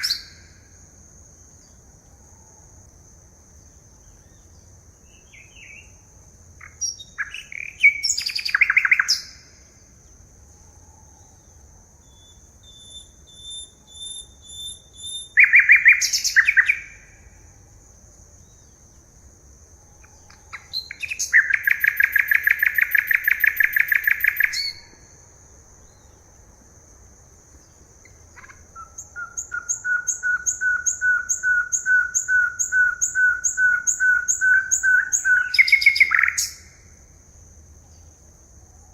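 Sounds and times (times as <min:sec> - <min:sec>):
songbirds singing: 0:00.0 - 0:02.8, 0:03.5 - 0:38.9.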